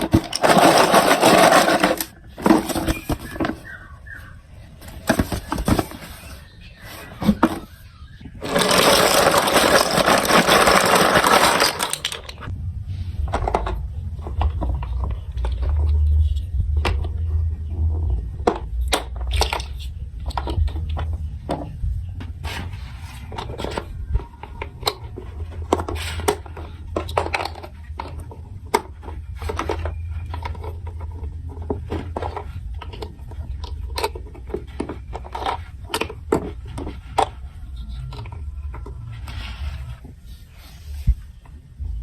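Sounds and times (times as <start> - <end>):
plastic blocks clicking and clattering: 0.0 - 3.9, 4.8 - 12.5, 18.4 - 39.6
steady low hum: 12.5 - 22.5.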